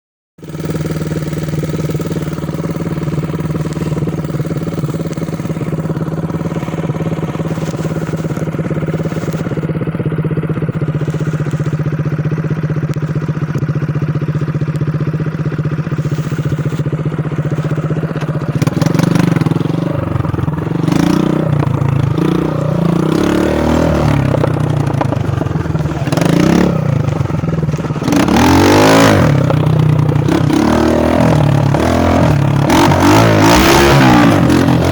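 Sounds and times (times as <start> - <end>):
dirt bike engine revving: 0.4 - 34.9.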